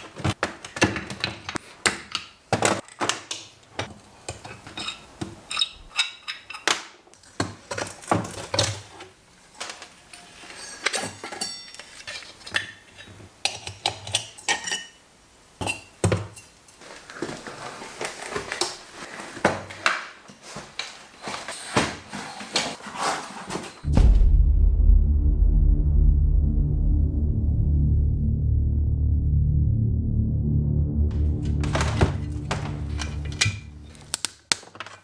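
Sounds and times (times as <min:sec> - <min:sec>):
metal tools clinking and knocking: 0:10.2 - 0:13.1.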